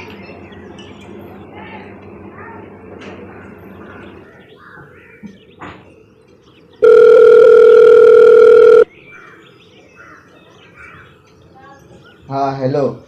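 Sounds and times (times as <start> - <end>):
phone call tone beep: 6.8 - 8.9.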